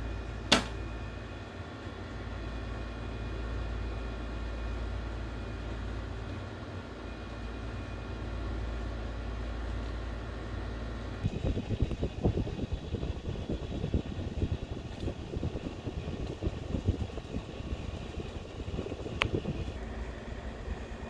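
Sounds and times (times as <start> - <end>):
ceiling fan humming: 0.0 - 21.0
wind buffeting microphone: 11.2 - 19.8.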